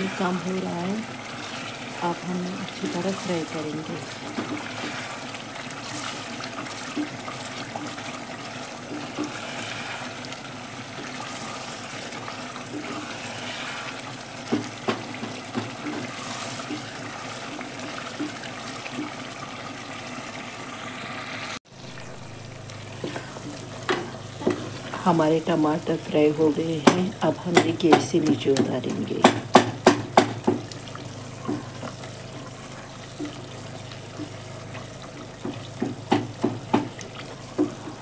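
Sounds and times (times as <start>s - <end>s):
chutney sizzling and bubbling: 0.0s - 38.0s
wooden spatula knocking pot: 14.5s - 16.8s, 23.1s - 25.0s, 26.7s - 30.8s, 35.4s - 38.0s.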